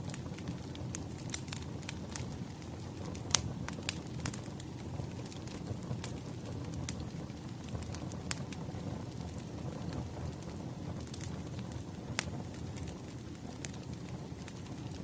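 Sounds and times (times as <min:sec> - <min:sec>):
wood fire crackling: 0:00.0 - 0:15.0
sharp pops of burning logs: 0:00.1 - 0:15.0.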